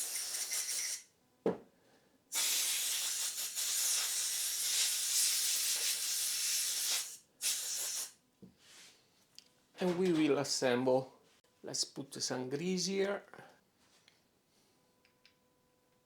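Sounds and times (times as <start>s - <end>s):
pressurised jet hissing: 2.3s - 8.1s.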